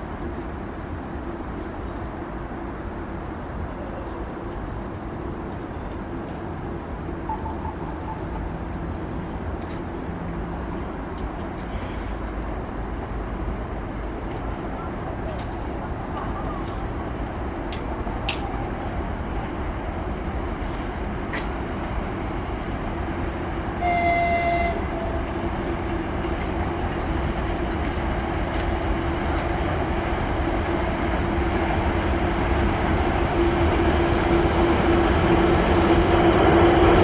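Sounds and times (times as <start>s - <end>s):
freight train rumbling: 0.0s - 37.0s
locomotive hum: 0.0s - 37.0s
two-tone train horn blast: 23.8s - 25.3s.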